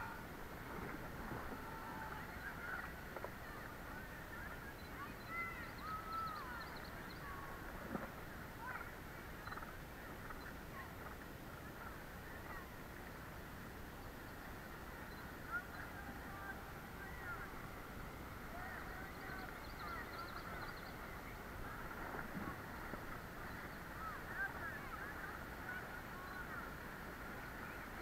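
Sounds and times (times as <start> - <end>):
faint bird calls and chirps: 1.4 - 12.7, 13.8 - 28.0
river water rushing: 11.4 - 28.0.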